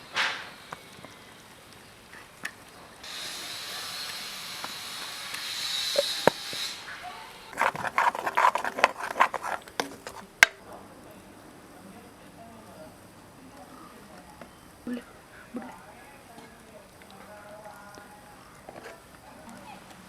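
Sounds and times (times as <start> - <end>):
food frying in a pan: 0.0 - 10.7, 11.8 - 20.0
utensil clattering in a pan: 7.6 - 10.6.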